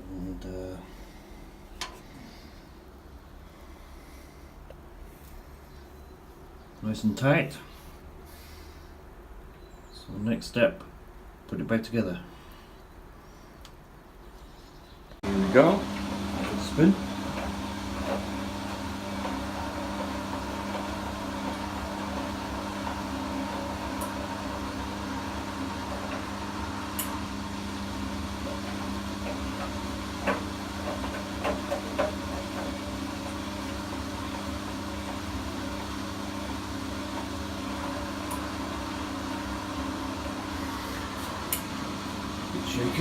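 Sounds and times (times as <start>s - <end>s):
washing machine spinning: 15.2s - 43.0s.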